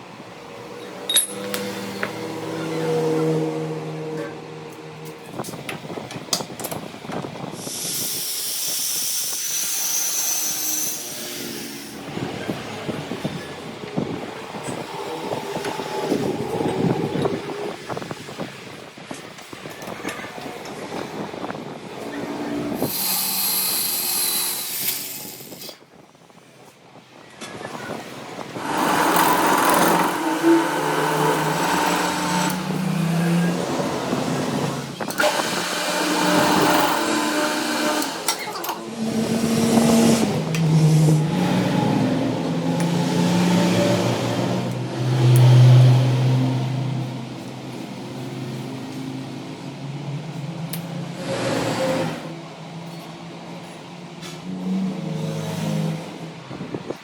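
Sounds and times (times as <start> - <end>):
workshop machine running with whine: 0.0 - 57.0.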